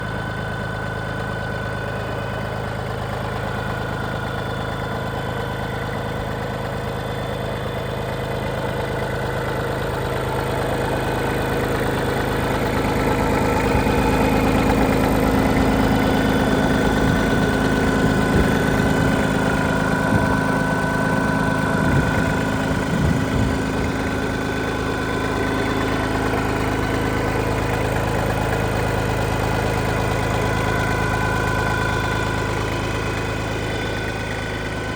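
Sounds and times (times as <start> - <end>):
crawler tractor engine running: 0.0 - 34.9.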